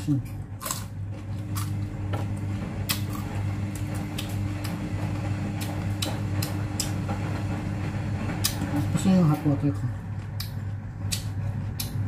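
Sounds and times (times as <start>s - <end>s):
electrical hum: 0.0s - 12.0s
carrot crunching: 0.1s - 7.0s.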